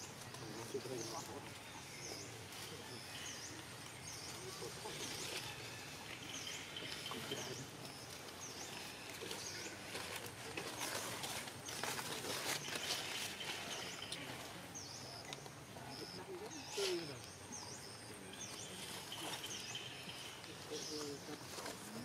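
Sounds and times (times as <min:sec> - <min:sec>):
rustling: 0:00.0 - 0:17.4.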